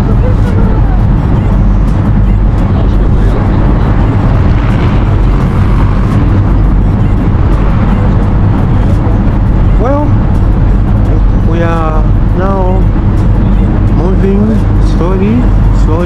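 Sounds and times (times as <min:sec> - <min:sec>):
broad rushing noise: 0:00.0 - 0:16.0
ferry engine droning: 0:00.0 - 0:16.0.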